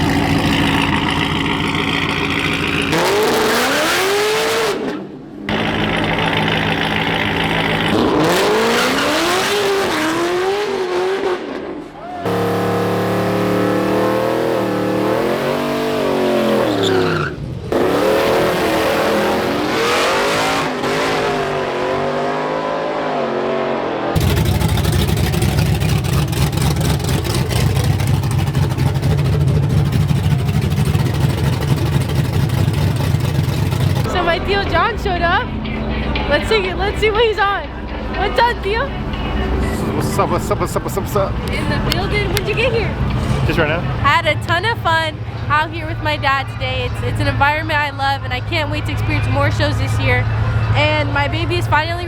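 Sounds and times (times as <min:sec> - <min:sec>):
low engine rumble: 0:00.0 - 0:03.0, 0:05.2 - 0:08.3, 0:24.2 - 0:52.0
race car engines revving: 0:00.0 - 0:52.0.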